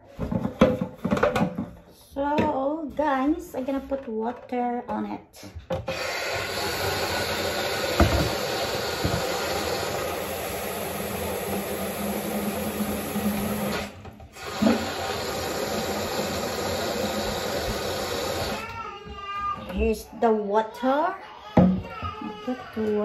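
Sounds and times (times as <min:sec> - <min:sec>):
tap water running into tank: 0:05.9 - 0:19.2
knock: 0:08.0 - 0:08.4.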